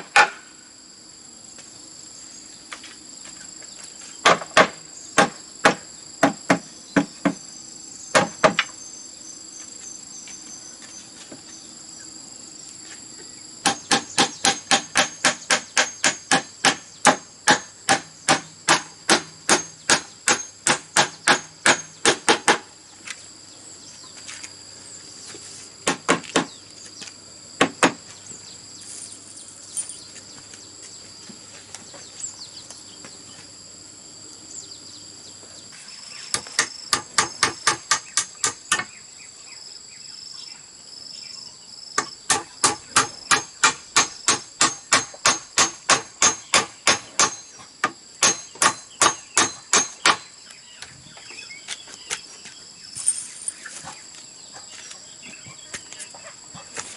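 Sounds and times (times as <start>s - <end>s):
hammer blows on bamboo: 0.0s - 0.6s, 4.2s - 7.4s, 8.1s - 8.8s, 13.6s - 22.7s, 36.3s - 39.0s, 42.0s - 50.3s
insects shrilling: 0.0s - 56.9s.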